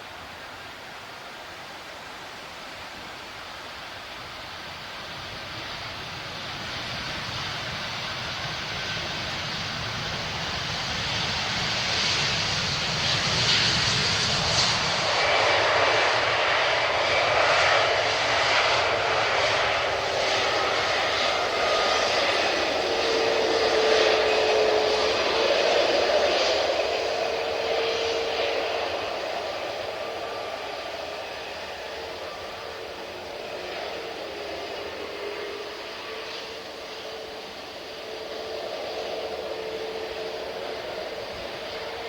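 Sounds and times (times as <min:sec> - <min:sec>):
jet airliner engines rushing: 0:00.0 - 0:42.0
thin whining tones: 0:17.2 - 0:42.0.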